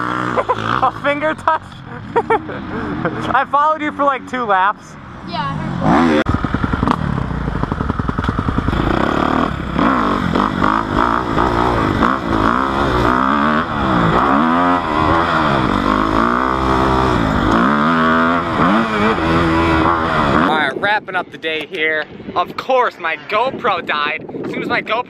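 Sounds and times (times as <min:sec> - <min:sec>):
dirt bike engine revving: 0:00.0 - 0:04.4, 0:05.2 - 0:20.8.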